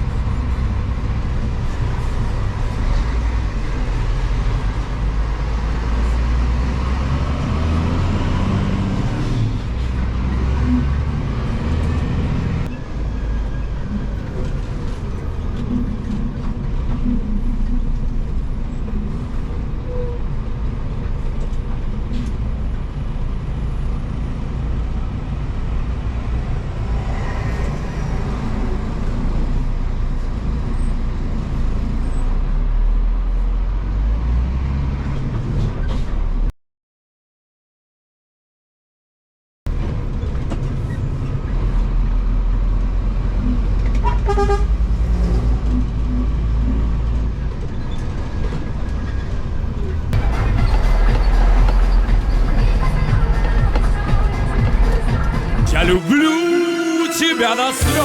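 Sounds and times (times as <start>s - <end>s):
truck diesel engine drone: 0.0s - 27.0s, 55.6s - 58.0s
road noise: 0.0s - 36.5s, 39.7s - 58.0s.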